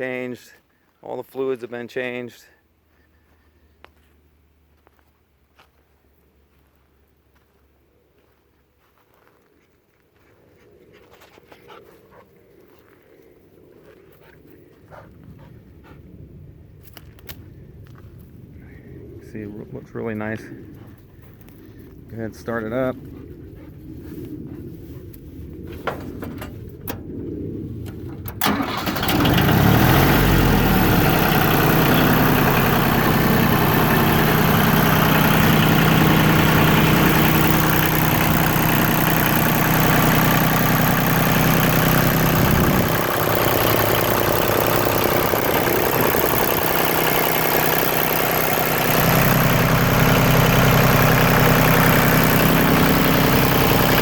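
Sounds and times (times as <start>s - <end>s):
diesel tractor engine idling: 25.7s - 54.0s
starter clicks: 30.8s - 54.0s.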